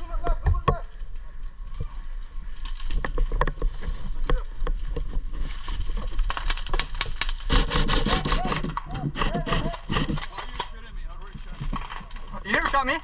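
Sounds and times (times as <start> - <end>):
brush rustling and scraping: 2.3 - 6.8
sharp clicks and cracks of gunfire: 6.3 - 10.8.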